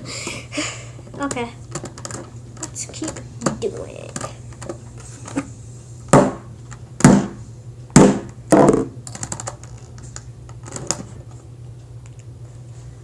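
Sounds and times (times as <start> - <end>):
hammer knocking plastic pieces: 6.1 - 6.4, 7.0 - 7.4, 8.0 - 9.6.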